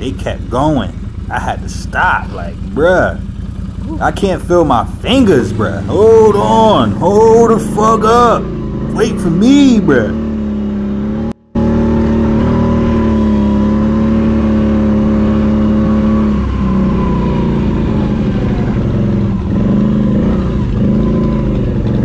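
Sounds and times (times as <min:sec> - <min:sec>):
atv engine idling: 0:00.0 - 0:09.6.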